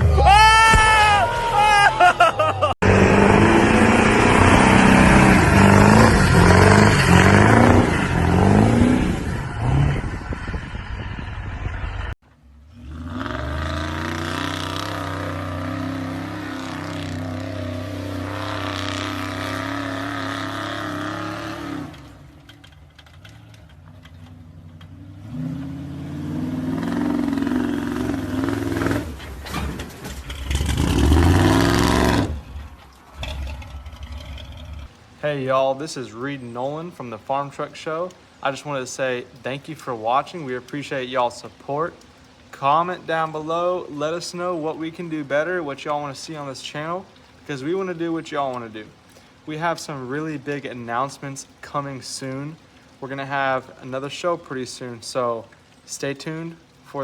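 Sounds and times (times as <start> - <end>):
truck engine revving: 0.0 - 35.0.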